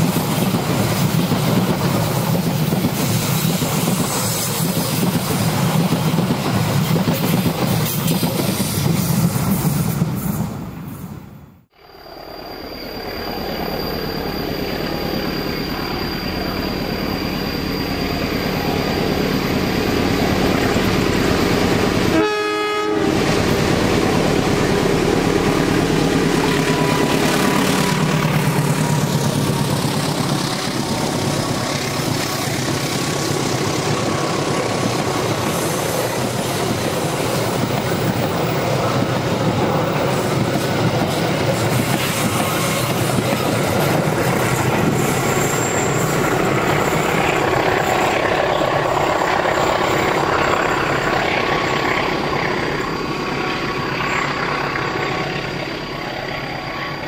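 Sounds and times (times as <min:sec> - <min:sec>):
train wheels clattering on rails: 0:00.0 - 0:10.6, 0:23.0 - 0:56.6
train horn note: 0:22.0 - 0:23.6
locomotive engine running: 0:22.9 - 0:57.0.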